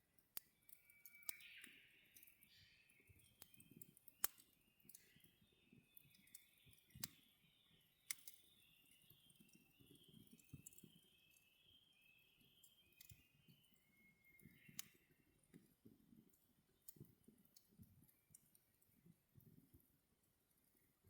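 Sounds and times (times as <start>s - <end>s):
campfire crackling: 3.2s - 5.2s, 8.1s - 8.5s, 10.3s - 10.9s.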